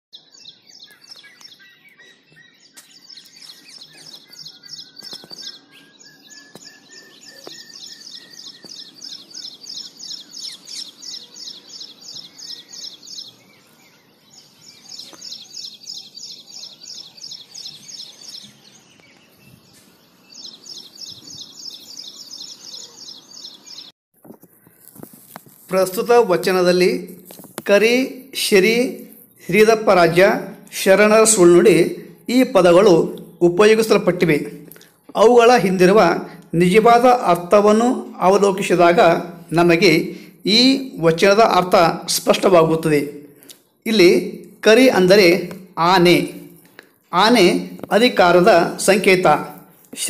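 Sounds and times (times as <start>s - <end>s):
bird trilling: 0.2s - 19.2s.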